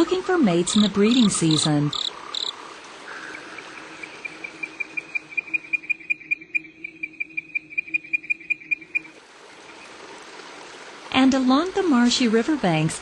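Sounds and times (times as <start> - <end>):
frog chirping: 0.6 - 9.2.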